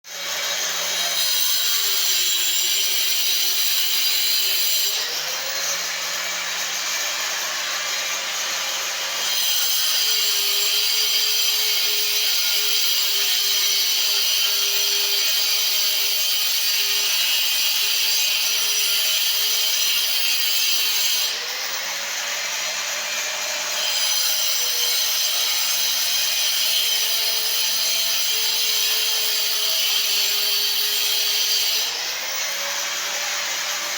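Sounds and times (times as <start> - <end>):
power tool cutting pipe: 0.1 - 33.9.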